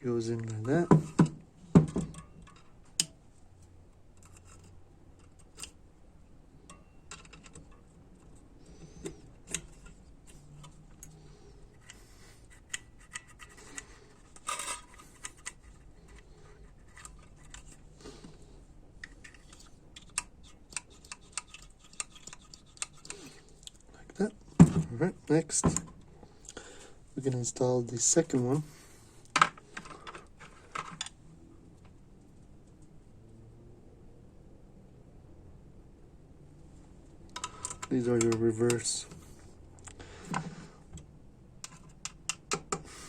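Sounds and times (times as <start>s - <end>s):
small metal parts clicking: 6.6s - 11.2s, 11.8s - 17.8s, 37.3s - 38.9s.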